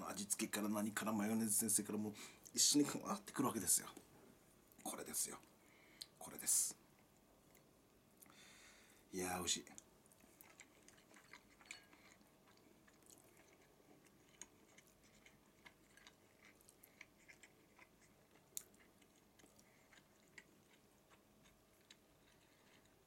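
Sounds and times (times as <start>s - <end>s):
close-up chewing of soft food: 9.7s - 23.0s.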